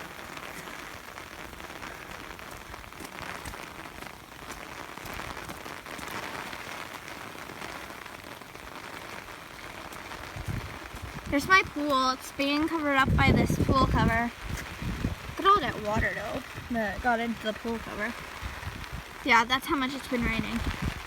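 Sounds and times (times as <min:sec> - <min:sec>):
heavy rain pouring: 0:00.0 - 0:21.0
rain pattering on umbrella: 0:00.0 - 0:21.0.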